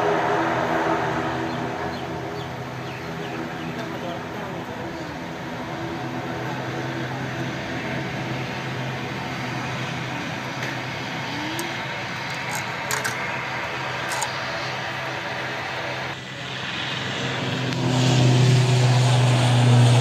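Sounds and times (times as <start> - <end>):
aircraft engines humming: 0.0 - 20.0.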